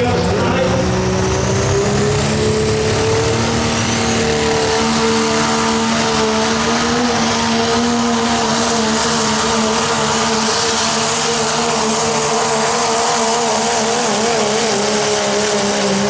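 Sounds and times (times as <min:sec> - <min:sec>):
pickup truck engine at high revs: 0:00.0 - 0:16.0.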